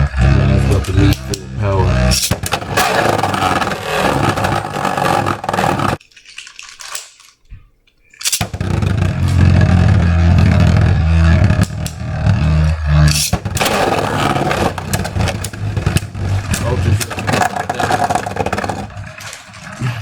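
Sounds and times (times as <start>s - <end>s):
low hum: 0.0s - 2.4s, 8.6s - 20.0s
spinning tops clattering together: 8.2s - 9.4s.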